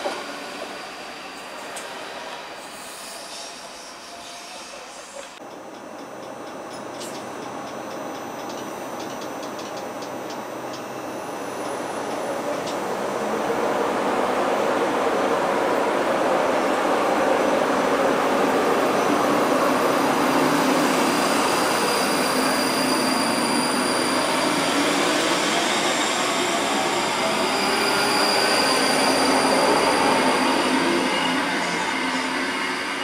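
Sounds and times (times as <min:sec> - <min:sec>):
passenger train running past: 0:00.0 - 0:33.0
high-pitched whining tones: 0:18.9 - 0:33.0.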